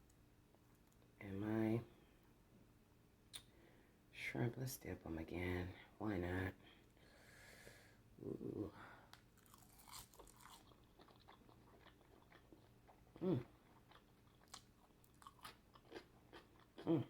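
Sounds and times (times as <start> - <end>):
person chewing with crunching: 9.4 - 17.0
person humming: 13.2 - 13.5.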